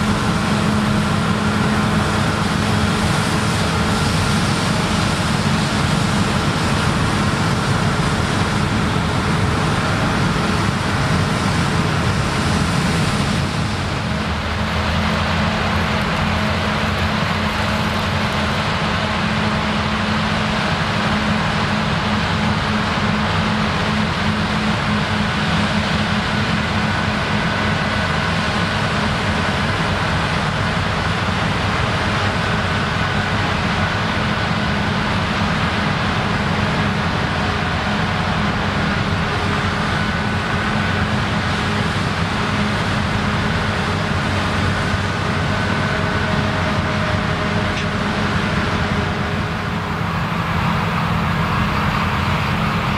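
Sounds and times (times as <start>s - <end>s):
combine harvester engine drone: 0.0s - 52.9s.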